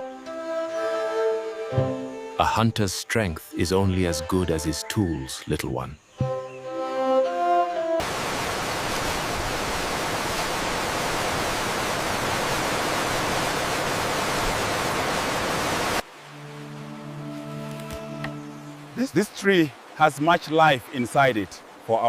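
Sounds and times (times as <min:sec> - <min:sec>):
music: 0:00.0 - 0:08.0, 0:16.2 - 0:19.0.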